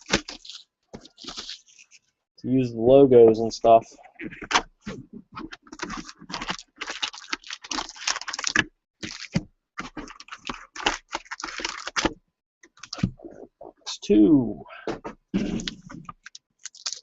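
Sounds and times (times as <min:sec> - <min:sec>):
card packaging crinkling and clicking: 0:00.0 - 0:02.0, 0:05.4 - 0:12.2, 0:15.6 - 0:17.0.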